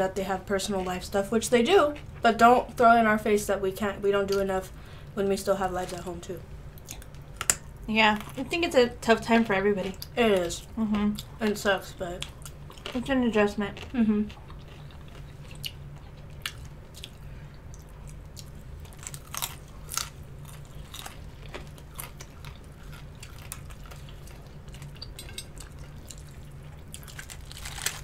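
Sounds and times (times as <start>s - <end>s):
steady low hum: 0.0s - 28.0s
crunchy bites and chewing: 13.8s - 28.0s.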